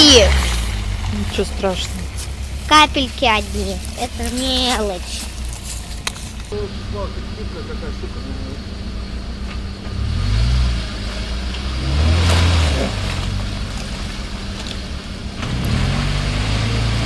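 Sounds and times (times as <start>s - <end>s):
off-road engine revving hard: 0.0s - 5.6s, 6.5s - 17.0s.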